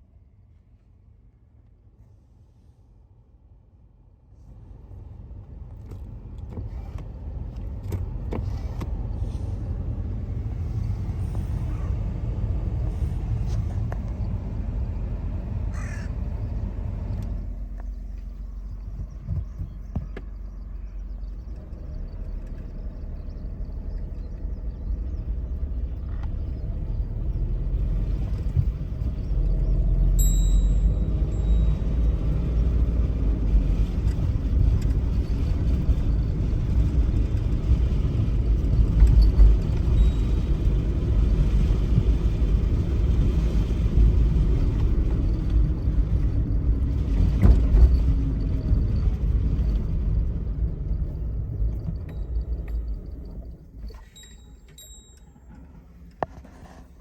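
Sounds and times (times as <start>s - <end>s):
car engine and road noise: 0.0s - 57.0s
short high squeak: 53.9s - 55.8s.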